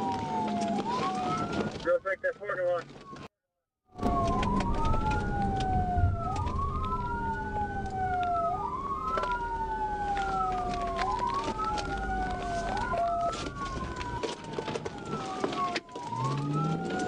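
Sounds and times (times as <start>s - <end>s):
police siren wailing: 0.0s - 3.3s, 3.9s - 17.0s
car rumble: 4.0s - 17.0s.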